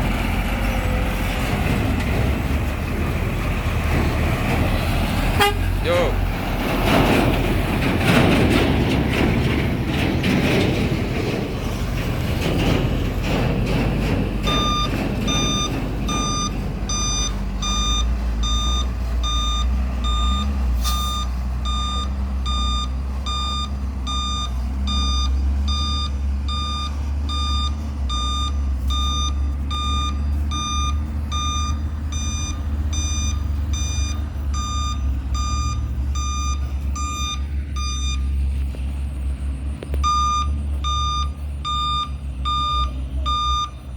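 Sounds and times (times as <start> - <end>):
truck engine running: 0.0 - 43.9
reversing alarm beeping: 14.4 - 38.4, 40.0 - 43.9.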